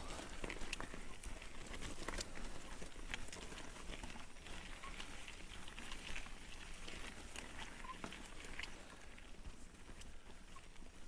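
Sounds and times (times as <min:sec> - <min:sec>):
bike clicking and rattling: 0:00.0 - 0:11.0
tyres on loose stones: 0:00.0 - 0:11.0.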